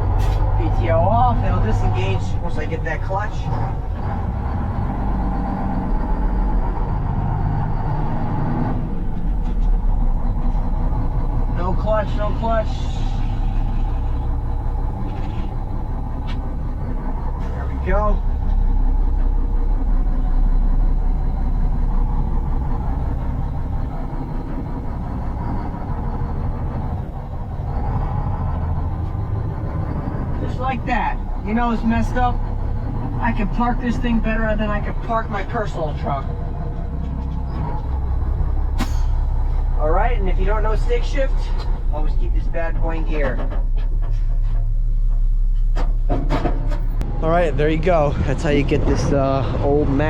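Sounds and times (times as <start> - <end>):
diesel truck engine running: 0.0 - 50.0
high steady hum: 9.3 - 50.0.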